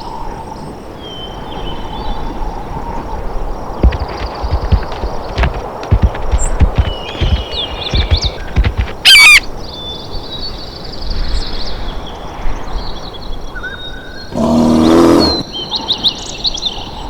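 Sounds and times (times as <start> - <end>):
loud animal calls: 3.8 - 9.4, 14.3 - 15.5
small birds chirping: 3.8 - 9.4.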